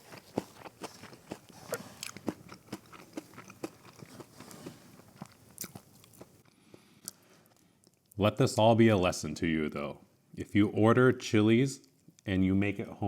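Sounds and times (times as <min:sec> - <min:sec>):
crunchy chewing: 0:00.0 - 0:08.2.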